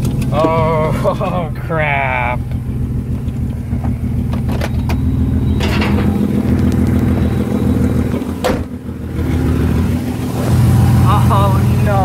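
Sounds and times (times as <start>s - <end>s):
rotary engine running: 0.0s - 12.0s.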